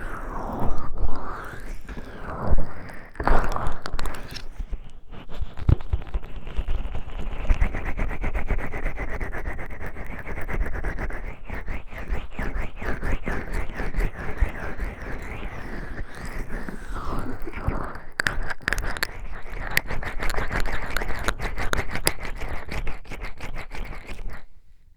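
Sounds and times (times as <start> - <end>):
oiled hands rubbing microphone: 11.6 - 24.6.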